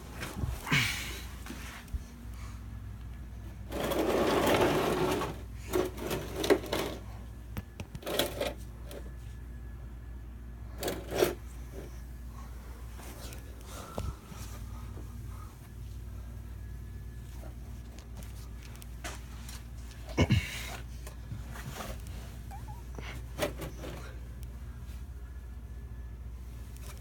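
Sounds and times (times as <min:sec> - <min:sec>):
steady low hum: 0:00.0 - 0:27.0
rustling and scraping with tools: 0:03.5 - 0:09.2, 0:10.7 - 0:12.0, 0:17.2 - 0:24.2.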